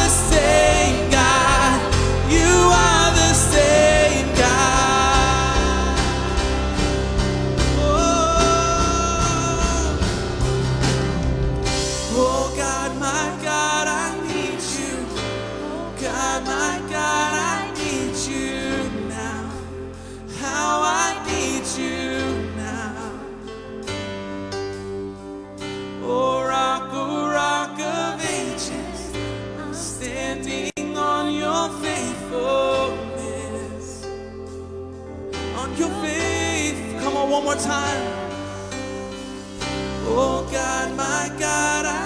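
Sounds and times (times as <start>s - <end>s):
people singing: 0.0s - 24.0s, 26.0s - 42.0s
drums: 0.0s - 25.9s, 35.2s - 42.0s
bass: 0.0s - 42.0s
guitar: 0.0s - 42.0s
piano: 0.0s - 42.0s.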